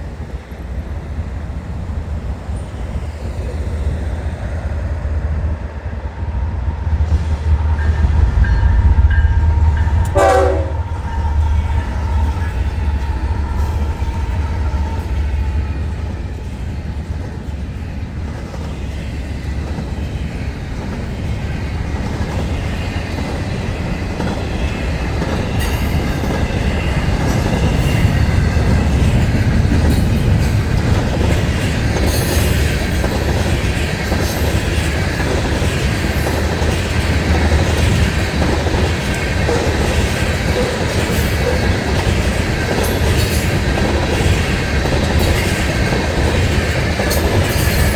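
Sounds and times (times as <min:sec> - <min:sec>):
freight train cars rumbling: 0:00.0 - 0:47.9
wheels clicking over rail joints: 0:09.8 - 0:47.9.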